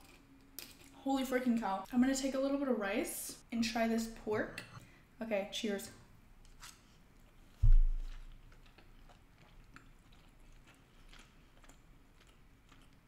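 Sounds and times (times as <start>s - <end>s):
soft chewing: 6.4s - 13.0s
dull low thump: 7.6s - 8.1s.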